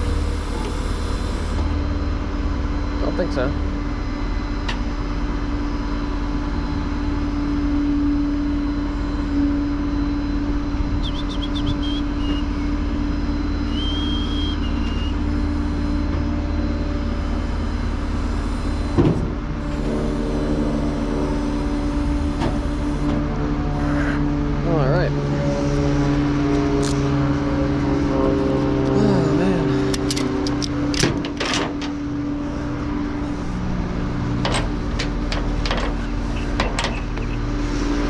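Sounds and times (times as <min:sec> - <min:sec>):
truck engine running: 0:00.0 - 0:38.0.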